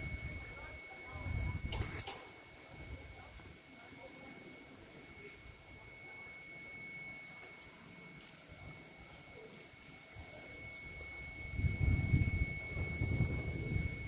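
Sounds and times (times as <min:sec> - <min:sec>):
faint thin high tone: 0:04.1 - 0:14.0.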